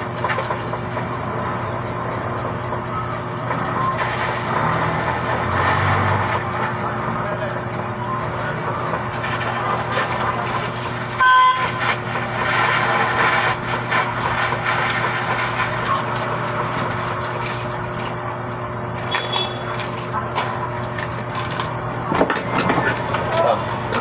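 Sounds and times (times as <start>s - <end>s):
traffic hum: 0.0s - 24.0s
vehicle horn beep: 11.2s - 11.8s, 19.0s - 19.8s.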